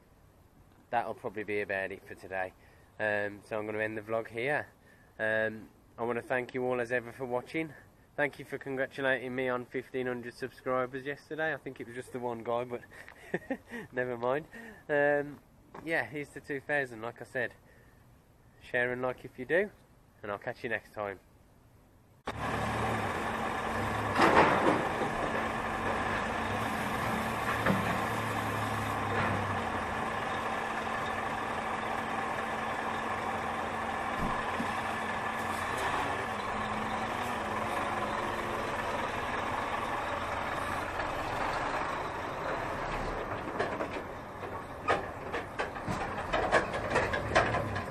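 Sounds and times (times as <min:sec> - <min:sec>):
lorry engine idling: 0:22.3 - 0:47.9.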